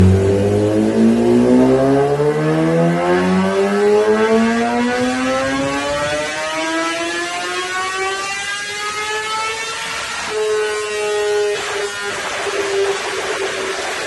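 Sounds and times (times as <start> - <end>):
motorcycle engine accelerating: 0.0 - 6.6.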